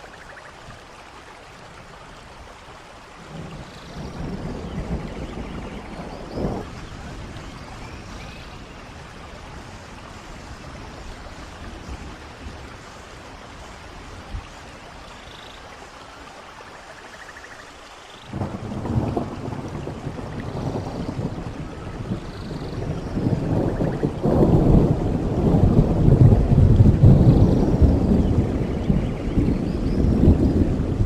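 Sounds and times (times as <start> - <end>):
running water: 0.0 - 31.0
steady rain: 0.0 - 31.0
thunder rumble: 3.3 - 14.4, 18.3 - 31.0.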